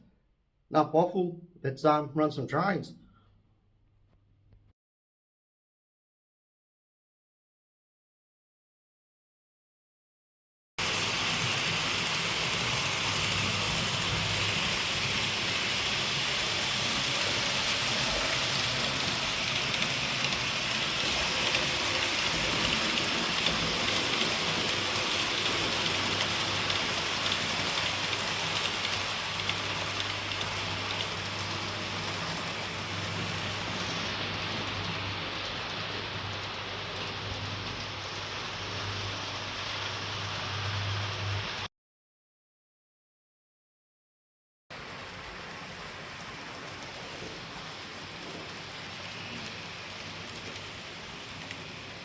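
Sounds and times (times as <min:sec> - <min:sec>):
model train wheels rolling: 0:10.8 - 0:39.9, 0:44.8 - 0:52.0.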